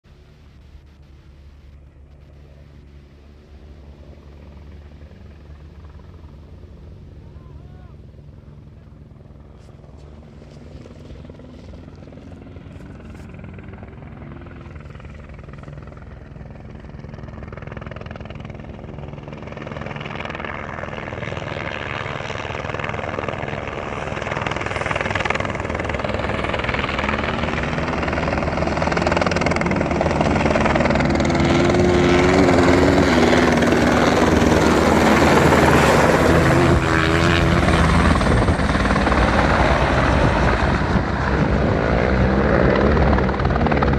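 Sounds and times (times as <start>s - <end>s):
helicopter rotor: 0.1s - 43.9s
motorcycle engine: 26.9s - 43.9s.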